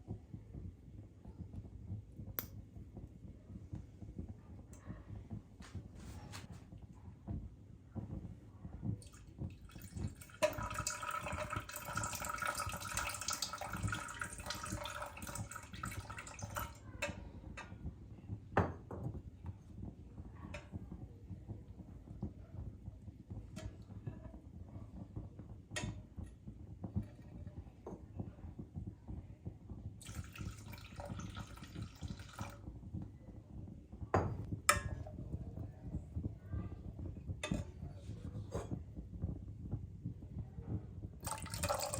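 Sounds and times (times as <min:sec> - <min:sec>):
tap water running: 0:09.0 - 0:17.2, 0:30.0 - 0:32.6, 0:41.2 - 0:41.9.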